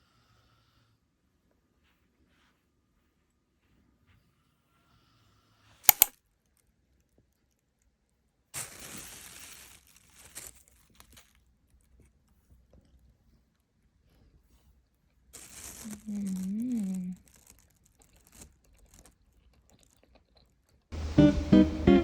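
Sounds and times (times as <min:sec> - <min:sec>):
sharp clicks: 0:05.9 - 0:06.1
rustling and crinkling: 0:08.6 - 0:11.4, 0:15.4 - 0:20.0.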